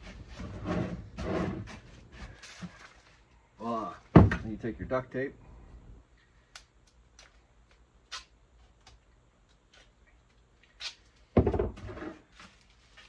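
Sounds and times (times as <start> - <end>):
rough crackling scrape: 0.0 - 3.2.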